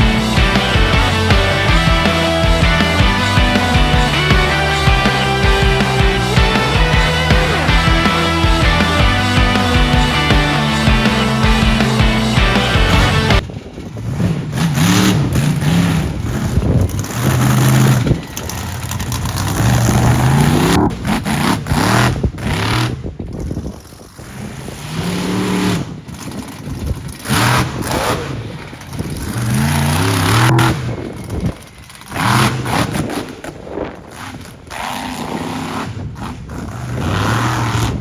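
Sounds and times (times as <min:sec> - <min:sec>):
truck engine revving: 0:00.0 - 0:13.5, 0:24.8 - 0:31.3, 0:34.1 - 0:38.0.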